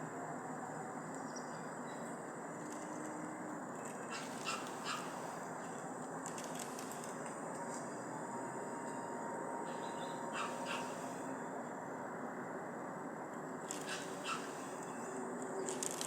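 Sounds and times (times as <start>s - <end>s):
animal calling: 4.1s - 5.3s, 9.6s - 11.3s, 13.7s - 14.6s.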